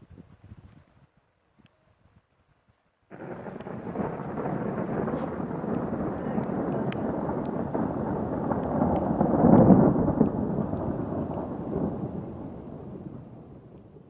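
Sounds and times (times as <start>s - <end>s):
thunder rumbling: 3.1s - 14.0s.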